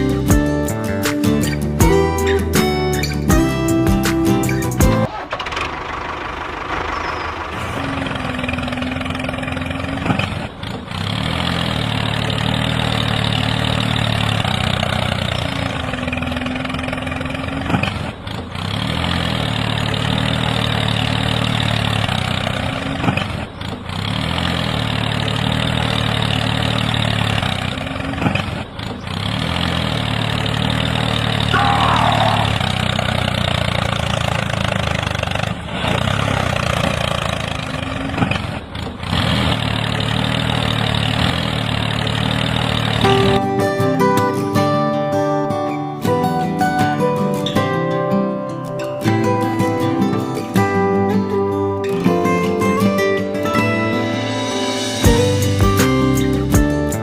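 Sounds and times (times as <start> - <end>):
tractor engine idling: 0.0 - 44.4.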